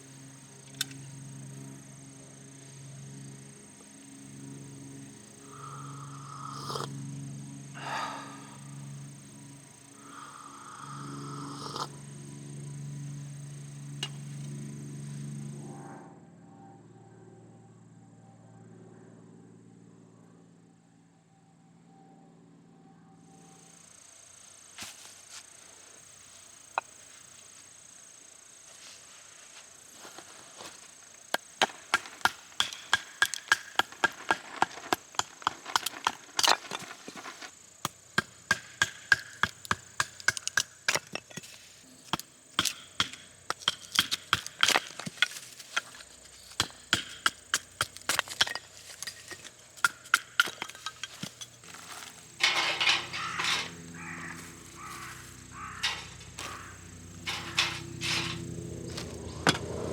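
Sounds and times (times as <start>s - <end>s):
rough dense noise: 30.6s - 59.9s
rapid sharp ringing knocks: 31.4s - 36.9s, 38.2s - 41.4s.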